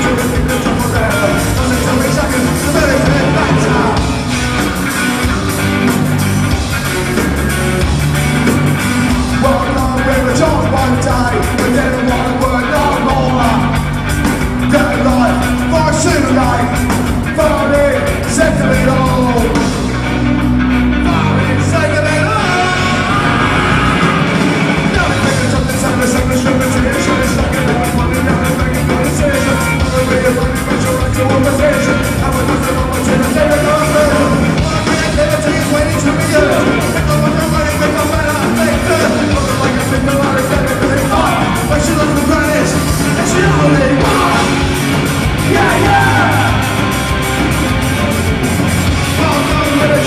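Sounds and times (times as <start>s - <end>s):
person singing: 0.0s - 4.2s, 9.3s - 13.9s, 21.0s - 44.8s, 45.4s - 47.0s
ska-punk band playing live: 0.0s - 50.0s.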